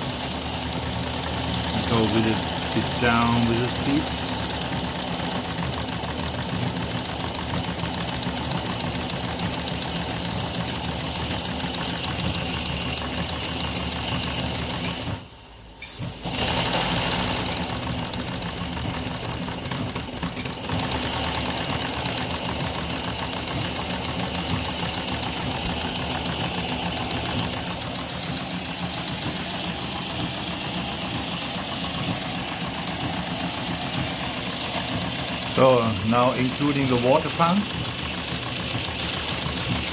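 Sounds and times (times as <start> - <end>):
model steam engine clatter: 0.0 - 39.9
steam hissing: 9.6 - 18.4.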